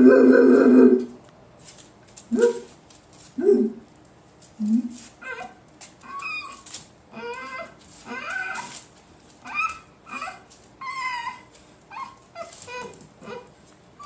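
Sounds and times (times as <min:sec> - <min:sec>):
puppies squealing: 0:05.2 - 0:08.8, 0:09.4 - 0:13.5.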